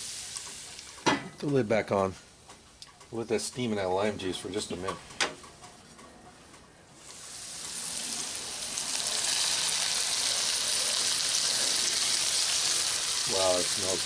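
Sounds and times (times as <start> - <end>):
food sizzling in a skillet: 0.0 - 1.1, 7.0 - 14.0.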